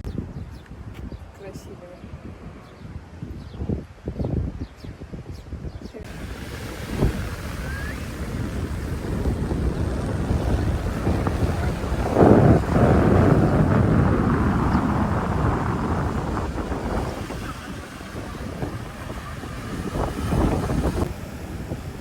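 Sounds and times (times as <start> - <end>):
wind buffeting microphone: 0.0 - 22.0
rough sea waves: 6.0 - 22.0.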